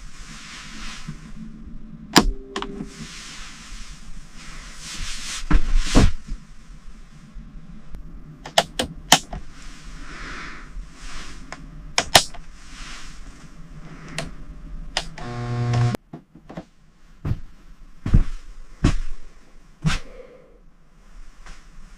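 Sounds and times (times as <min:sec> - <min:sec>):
short humming buzz: 0:15.1 - 0:16.0.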